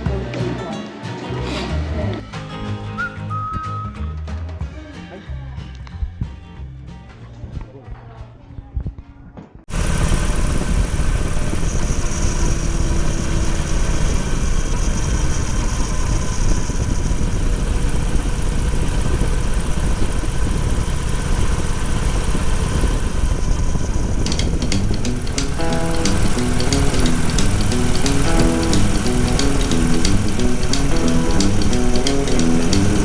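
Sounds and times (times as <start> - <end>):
motorcycle engine running: 9.7 - 33.0
sharp ticks: 24.2 - 33.0.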